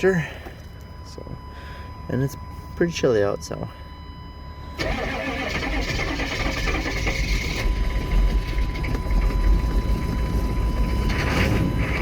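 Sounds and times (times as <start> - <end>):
starter motor cranking: 4.8 - 8.8
diesel engine running unevenly: 4.8 - 12.0.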